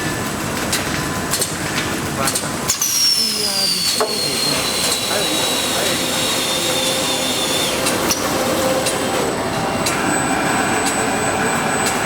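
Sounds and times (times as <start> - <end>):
factory machinery running: 0.0 - 12.0
thin high whines: 2.9 - 12.0.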